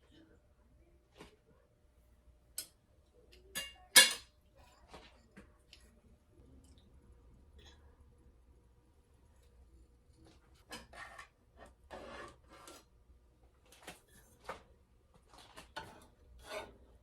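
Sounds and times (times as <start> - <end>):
kitchenware clinking: 3.4 - 5.4.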